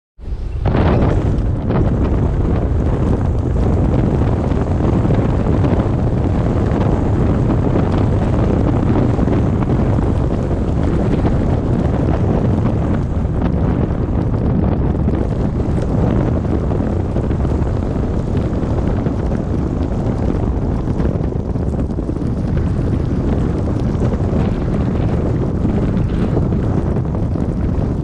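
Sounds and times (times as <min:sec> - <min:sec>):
car driving on snowy road: 0:00.2 - 0:28.0.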